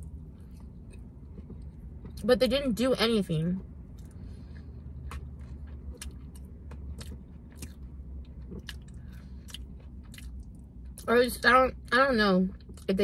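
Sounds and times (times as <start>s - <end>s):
person chewing: 0.0s - 2.2s, 3.9s - 11.1s
steady low hum: 0.0s - 13.0s.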